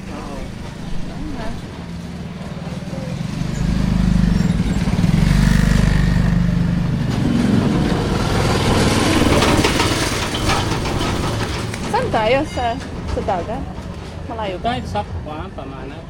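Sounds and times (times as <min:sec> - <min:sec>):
vehicle engine running: 0:00.0 - 0:12.4.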